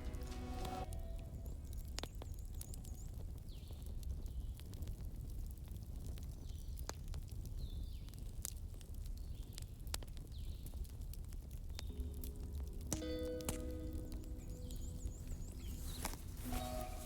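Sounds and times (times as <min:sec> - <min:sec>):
low rumble: 0:00.0 - 0:01.9, 0:11.9 - 0:17.0
fireplace crackling: 0:00.0 - 0:17.0
faint high falling chirp: 0:12.9 - 0:17.0.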